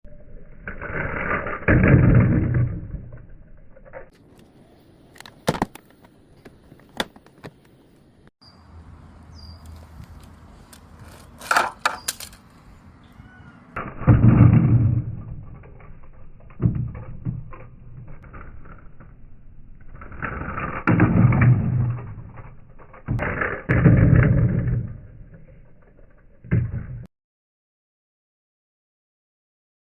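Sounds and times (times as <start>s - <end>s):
toy truck rolling rumbles: 10.1s - 12.5s, 13.8s - 27.1s.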